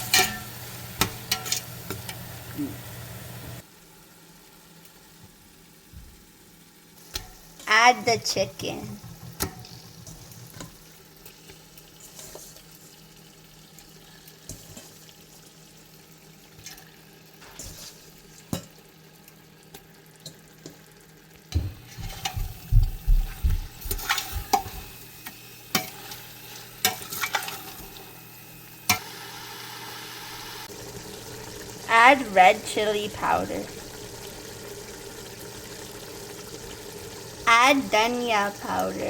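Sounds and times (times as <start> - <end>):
spoon scraping and knocking pan: 0.0 - 2.2, 21.5 - 25.0
chicken sizzling in oil: 0.0 - 39.0.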